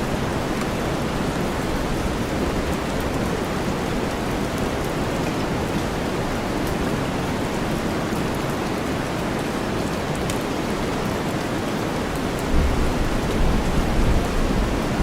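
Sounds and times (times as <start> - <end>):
heavy rain: 0.0 - 15.0
thunder rumble: 12.5 - 15.0.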